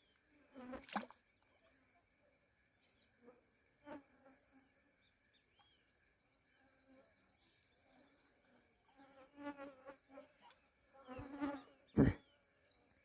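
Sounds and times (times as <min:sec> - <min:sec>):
insect chorus trilling: 0:00.0 - 0:13.0
faint bird chirp: 0:04.9 - 0:13.0.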